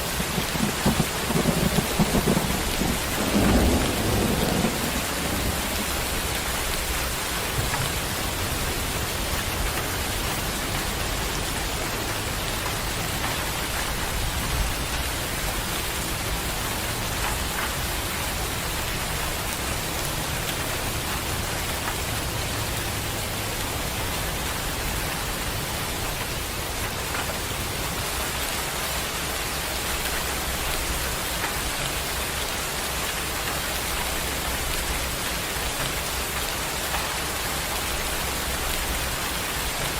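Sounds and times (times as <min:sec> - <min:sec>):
steady rain hissing: 0:00.0 - 0:39.9
low rumble: 0:00.6 - 0:07.8.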